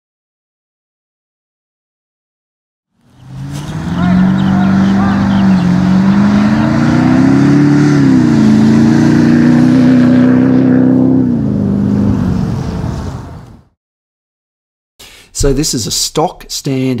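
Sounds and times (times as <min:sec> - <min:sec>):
diesel engine accelerating hard: 0:03.0 - 0:13.8.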